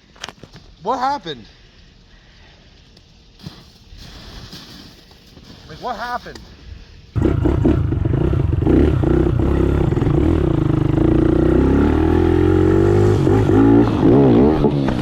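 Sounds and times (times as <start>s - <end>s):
motorbike engine revving: 7.2s - 15.0s.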